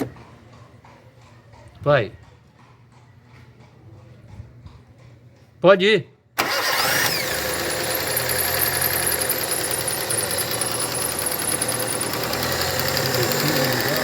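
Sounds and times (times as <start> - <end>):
car engine idling: 6.4 - 14.0.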